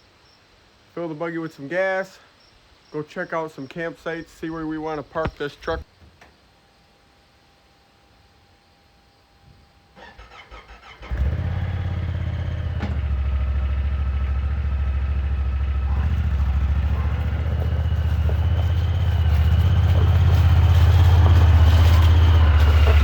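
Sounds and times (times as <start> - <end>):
engine idling: 10.0 - 23.0.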